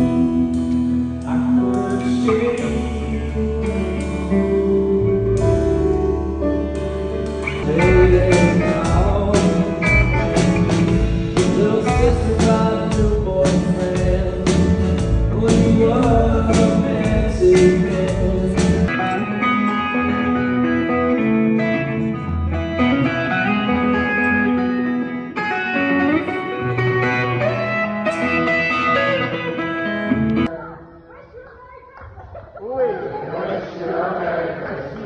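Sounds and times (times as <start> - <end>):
person singing: 0.0 - 6.3, 7.3 - 21.0
bass: 0.0 - 30.6
guitar: 0.0 - 33.8
drum beats: 6.8 - 18.9.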